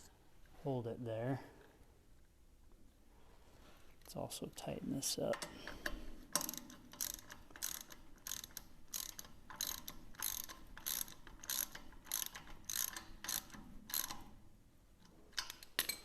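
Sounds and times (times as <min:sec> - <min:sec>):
ratchet wrench clicking: 0:05.8 - 0:14.3.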